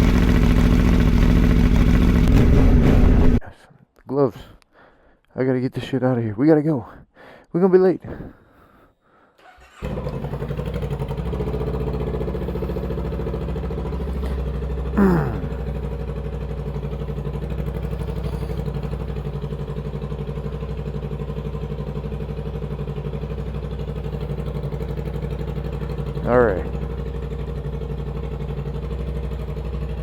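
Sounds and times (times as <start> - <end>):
motorcycle engine idling: 0.0 - 3.4, 9.4 - 30.0.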